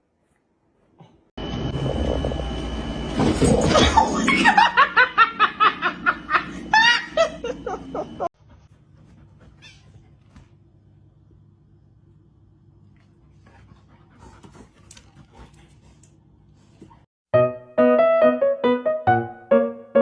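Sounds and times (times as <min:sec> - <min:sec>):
person laughing: 0:04.0 - 0:08.3.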